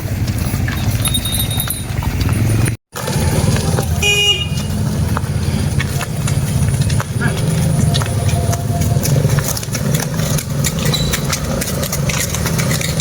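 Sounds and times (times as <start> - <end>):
vehicle engine rumbling: 0.0 - 13.0
short horn toot: 4.0 - 4.8.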